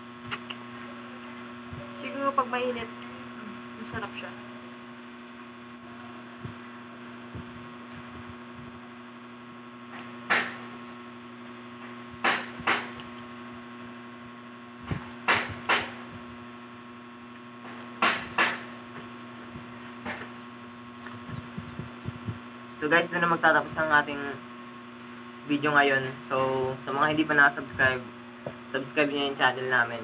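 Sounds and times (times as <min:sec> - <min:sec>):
electrical hum: 0:00.0 - 0:30.0
crunchy food being chewed: 0:12.9 - 0:16.2.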